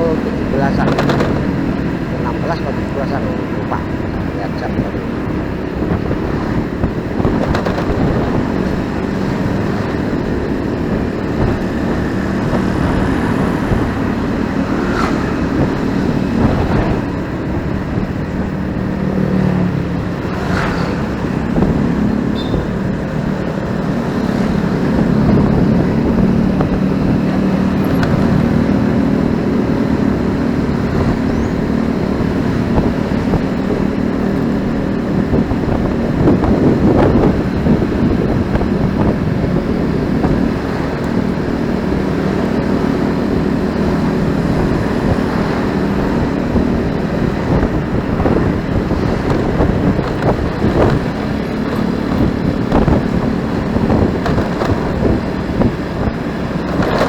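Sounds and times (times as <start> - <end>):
motorcycle engine running: 0.0 - 57.0
passing cars and motorbikes: 0.0 - 57.0
road noise: 0.0 - 57.0.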